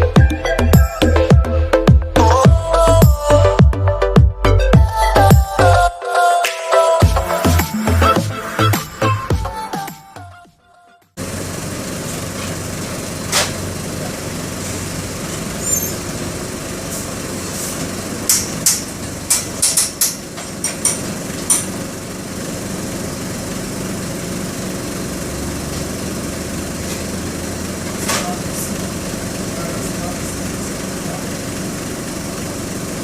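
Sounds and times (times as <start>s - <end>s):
diesel engine running: 0.0s - 5.9s, 7.0s - 10.3s, 11.1s - 33.0s
sharp clicks and knocks: 18.3s - 21.7s.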